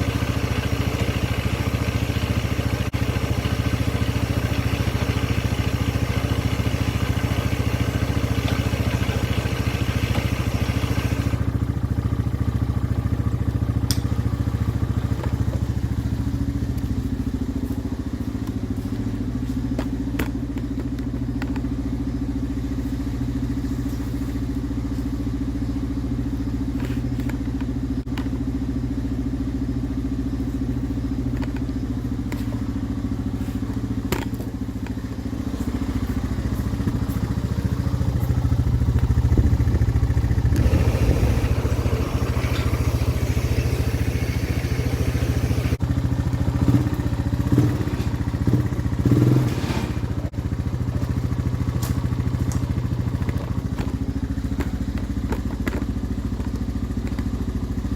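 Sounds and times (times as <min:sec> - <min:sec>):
snowmobile engine running: 0:32.3 - 0:45.8.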